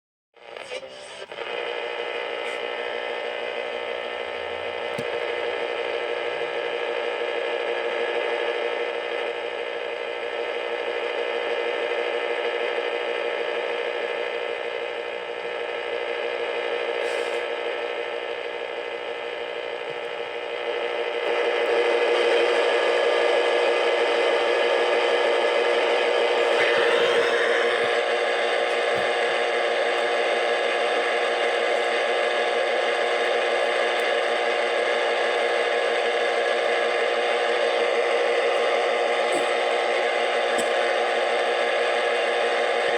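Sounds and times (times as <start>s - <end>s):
electronic static hiss: 0.4s - 42.9s
static crackles: 0.4s - 42.9s
steady whining tones: 24.5s - 42.9s.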